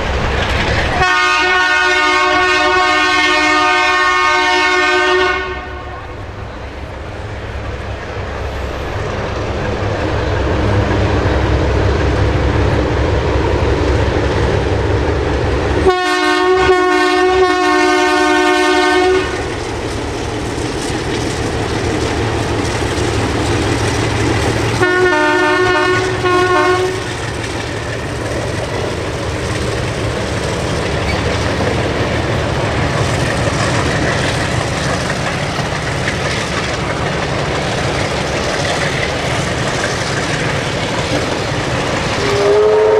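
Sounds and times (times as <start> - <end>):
train wheels rumbling on rail: 0.0 - 42.9
locomotive horn blasts: 1.0 - 6.2, 15.8 - 19.4, 24.8 - 27.1, 42.2 - 42.9.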